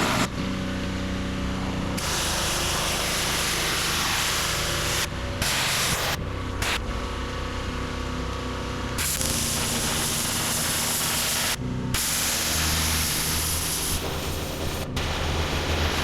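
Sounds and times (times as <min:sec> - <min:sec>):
pressure washer water jet spraying: 0:00.0 - 0:00.3, 0:02.0 - 0:06.8, 0:09.0 - 0:16.0.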